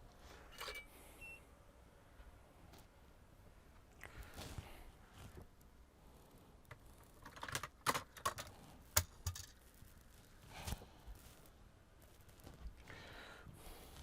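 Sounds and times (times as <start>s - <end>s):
soft rustle: 2.1s - 7.2s, 9.5s - 14.0s.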